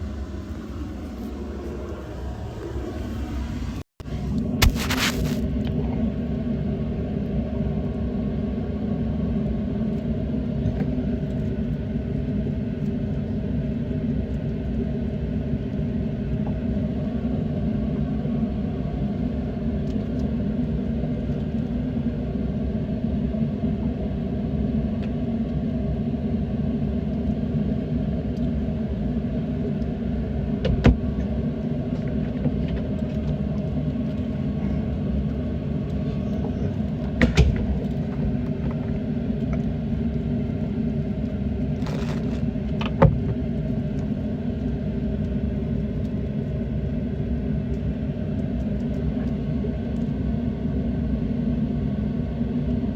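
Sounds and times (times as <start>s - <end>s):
water and hull noise: 29.6s - 46.8s.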